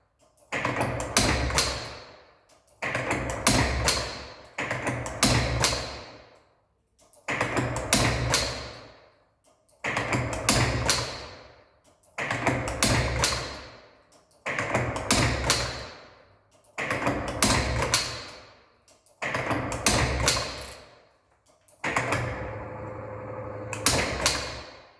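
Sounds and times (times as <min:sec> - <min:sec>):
tool turret clicks and clunk: 0:09.6 - 0:22.7, 0:23.7 - 0:24.9
mechanical whirring noise: 0:21.8 - 0:24.9.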